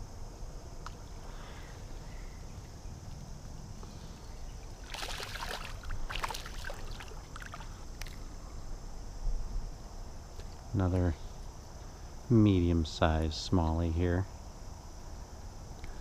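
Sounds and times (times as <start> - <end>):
fish splashing in water: 4.8 - 8.2.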